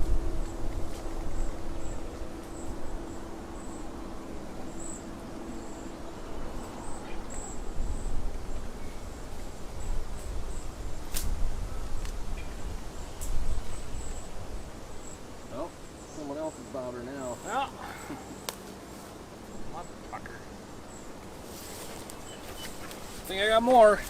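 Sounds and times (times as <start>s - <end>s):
crickets chirping: 0.0s - 24.0s
steady low hum: 0.0s - 24.0s.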